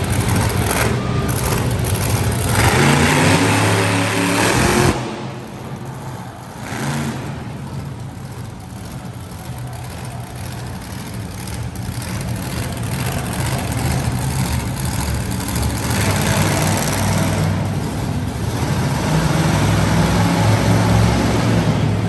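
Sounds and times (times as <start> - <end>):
monster truck engine revving: 0.0 - 22.0.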